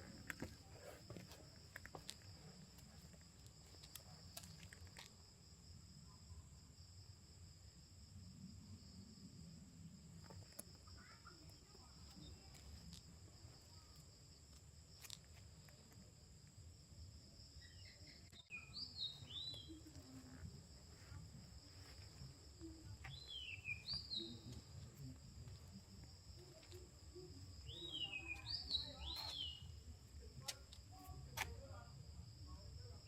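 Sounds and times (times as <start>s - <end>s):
insect chorus trilling: 17.3s - 30.1s.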